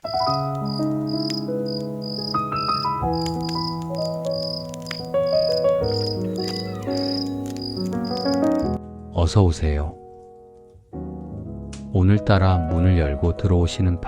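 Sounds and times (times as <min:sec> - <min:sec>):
crickets chirping: 0:00.0 - 0:08.6.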